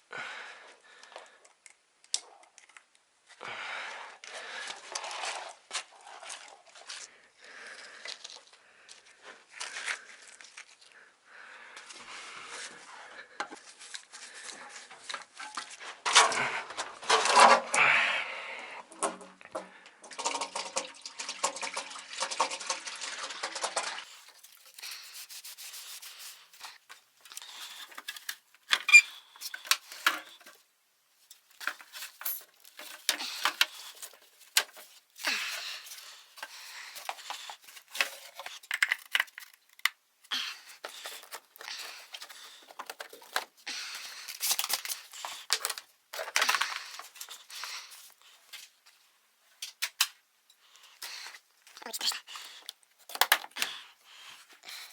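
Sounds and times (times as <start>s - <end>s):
hands rubbing and rustling: 24.1s - 49.0s.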